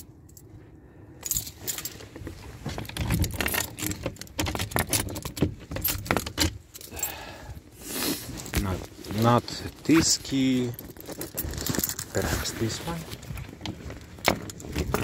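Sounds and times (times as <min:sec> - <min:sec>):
keys jangling and clicking: 0:01.2 - 0:02.1, 0:02.8 - 0:07.2, 0:10.1 - 0:12.3.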